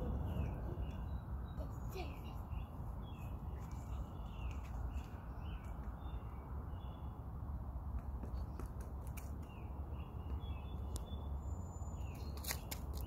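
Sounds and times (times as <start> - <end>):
low background rumble: 0.0 - 4.6
small birds chirping: 0.0 - 7.3, 8.0 - 13.0.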